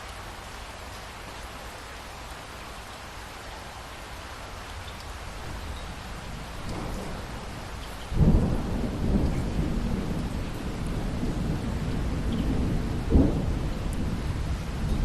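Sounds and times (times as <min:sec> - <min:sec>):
steady rain: 0:00.0 - 0:15.0
thunder rumbling: 0:06.2 - 0:15.0.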